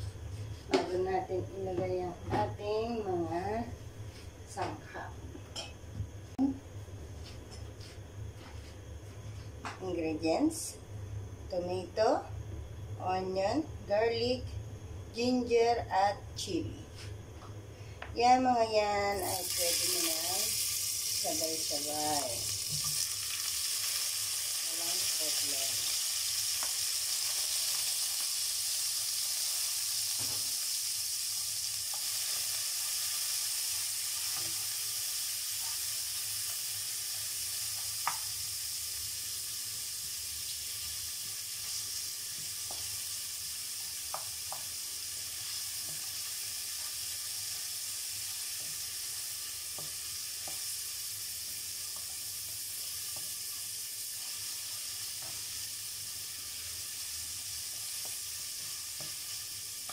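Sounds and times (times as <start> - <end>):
vegetables sizzling in hot oil: 18.9 - 59.9.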